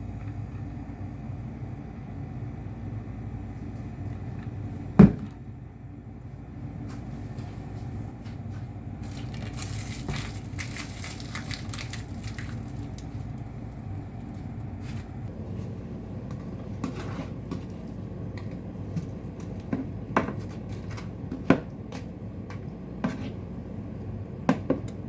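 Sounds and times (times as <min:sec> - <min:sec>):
crackling and crinkling: 0:07.0 - 0:15.3.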